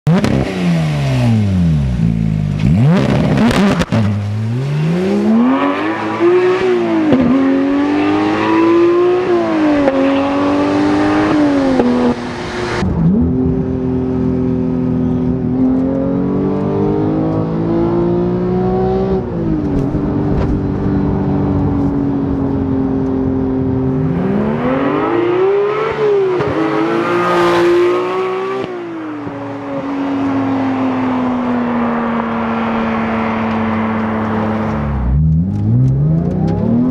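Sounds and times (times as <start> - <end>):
car exhaust accelerating through gears: 31.1 - 36.9.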